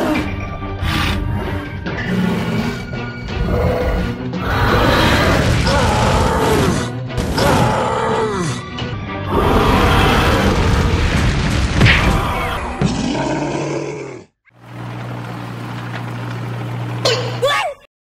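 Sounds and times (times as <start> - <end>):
background music: 0.0 - 12.3.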